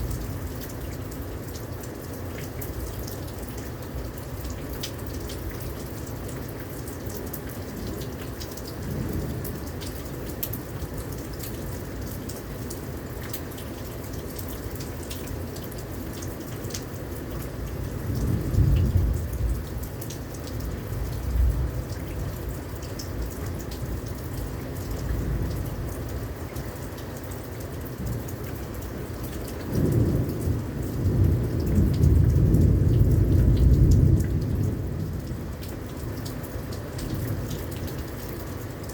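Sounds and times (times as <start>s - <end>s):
heavy rain pouring: 0.0s - 38.9s
rain drops hitting close by: 0.0s - 38.9s
thunder rumbling: 29.7s - 35.5s.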